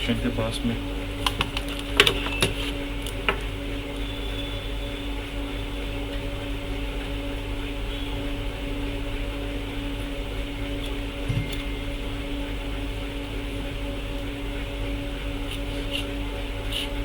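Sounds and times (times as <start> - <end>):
electric fan humming: 0.0 - 17.0.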